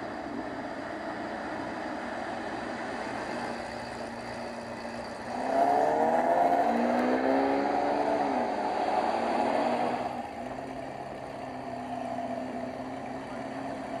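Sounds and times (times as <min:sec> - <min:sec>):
car engine idling: 0:00.0 - 0:07.0, 0:10.0 - 0:14.0.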